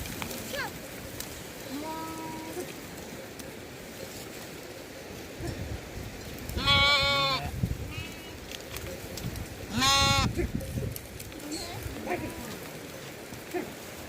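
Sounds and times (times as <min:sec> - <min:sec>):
sheep bleating: 0:06.6 - 0:07.5, 0:09.7 - 0:10.4.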